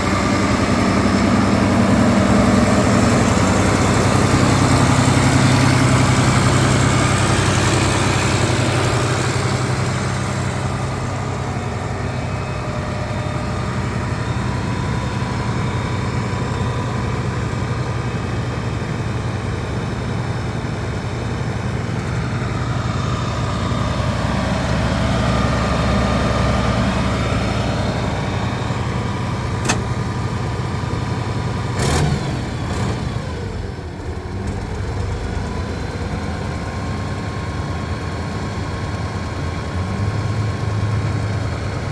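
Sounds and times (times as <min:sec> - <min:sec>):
tractor diesel engine running: 0:00.0 - 0:41.9
sharp click: 0:29.6 - 0:29.9.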